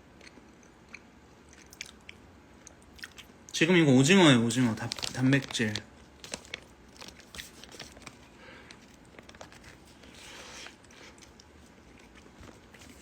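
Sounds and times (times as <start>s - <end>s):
person chewing: 0.2s - 3.3s, 10.2s - 13.0s.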